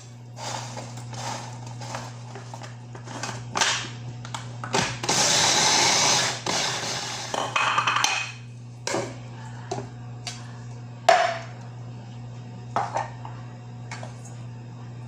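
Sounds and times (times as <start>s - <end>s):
blender whirring: 0.0s - 7.8s
steady low hum: 0.0s - 15.0s.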